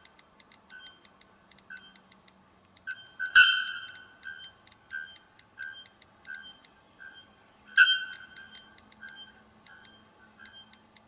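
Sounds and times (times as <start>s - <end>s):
bird chirps: 0.7s - 1.1s, 1.7s - 2.1s, 2.8s - 10.8s.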